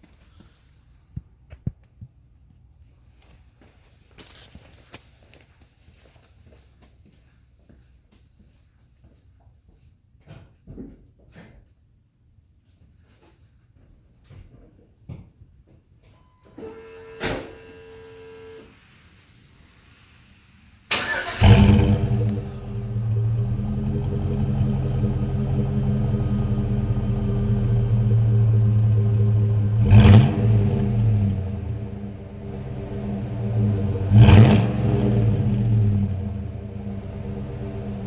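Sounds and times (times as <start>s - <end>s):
car engine starting and idling: 16.5s - 38.0s.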